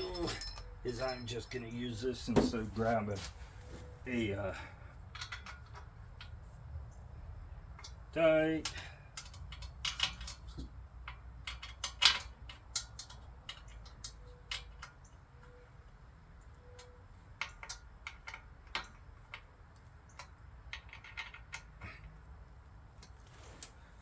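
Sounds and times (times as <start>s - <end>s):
hand tools clicking and knocking: 0.0s - 2.8s, 5.1s - 6.4s, 8.6s - 15.0s.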